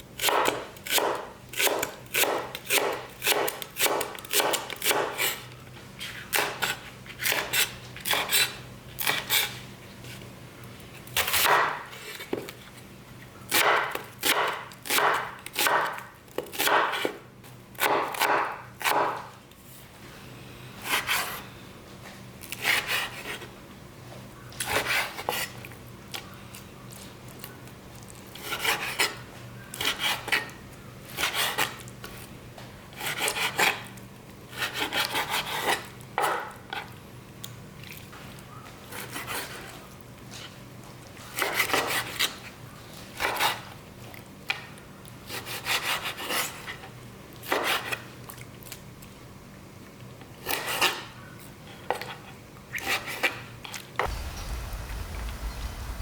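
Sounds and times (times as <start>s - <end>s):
faint steady hum: 54.0s - 56.0s.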